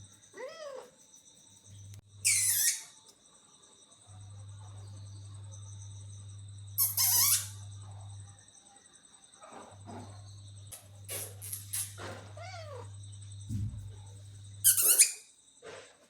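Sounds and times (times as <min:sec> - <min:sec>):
crickets chirring: 0:00.0 - 0:16.0
cat mewing: 0:00.4 - 0:01.0, 0:12.2 - 0:13.0.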